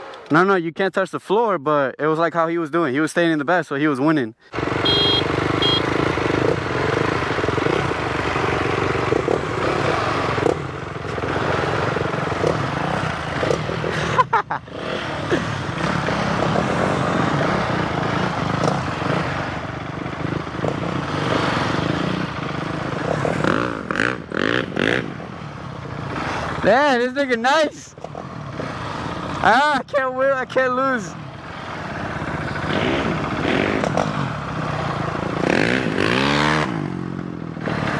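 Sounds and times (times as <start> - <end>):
motorcycle engines at low revs: 4.5 - 37.9.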